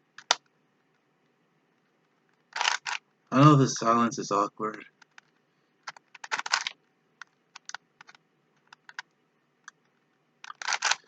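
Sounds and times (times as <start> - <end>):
puzzle cube plastic clicks: 0.2 - 1.0, 1.8 - 3.1, 4.7 - 11.0.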